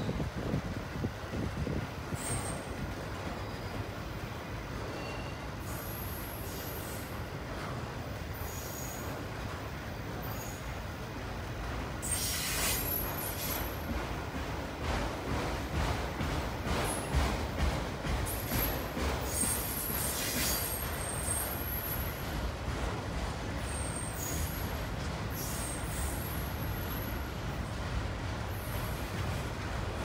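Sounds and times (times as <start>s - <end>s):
steel wheels rumbling on rail: 0.0s - 30.0s.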